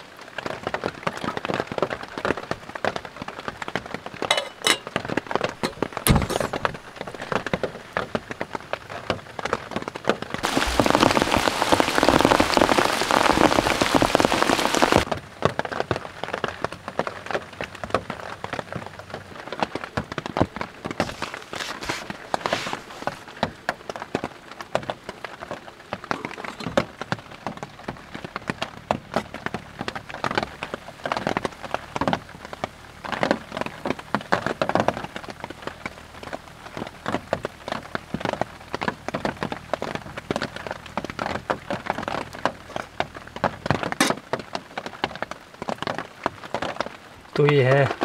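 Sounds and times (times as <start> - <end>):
heavy rain on tent fabric: 0.0 - 48.0.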